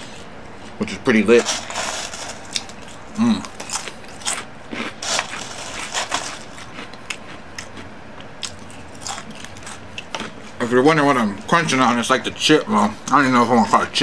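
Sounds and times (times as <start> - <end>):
person chewing crunchy food: 1.5 - 10.6.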